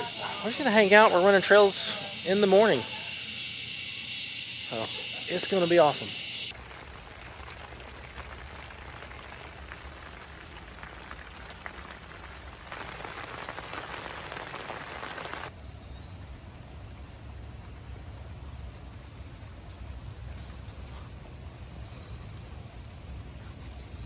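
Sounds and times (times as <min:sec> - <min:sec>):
rain hissing: 0:00.0 - 0:15.5
raindrops ticking: 0:06.5 - 0:15.5.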